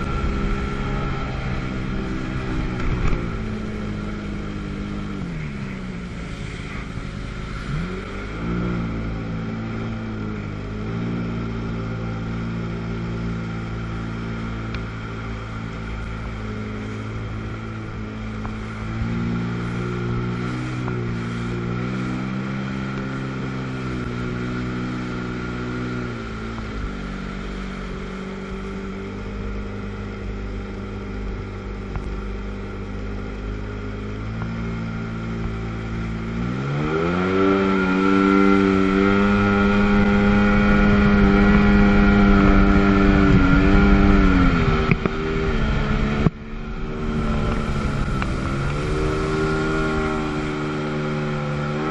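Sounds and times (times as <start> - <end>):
jet ski engine running: 0.0 - 51.9.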